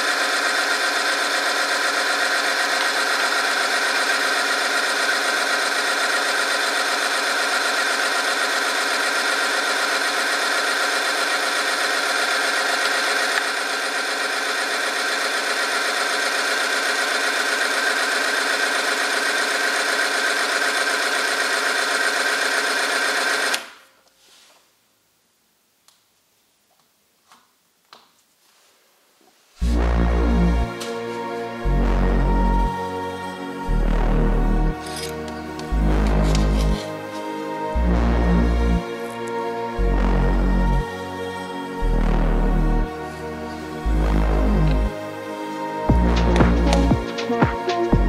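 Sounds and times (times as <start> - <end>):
electric motor whining: 29.7 - 48.0.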